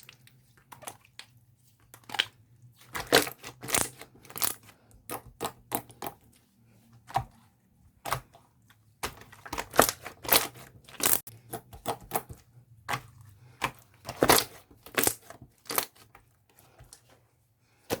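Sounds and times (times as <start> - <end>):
slime popping and crackling: 3.0 - 6.2, 9.5 - 12.2, 14.1 - 16.0.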